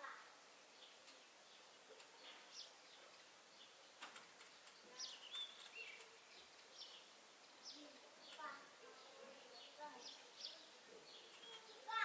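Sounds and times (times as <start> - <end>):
outdoor background hiss: 0.0 - 12.0
faint bird chirps: 4.8 - 12.0.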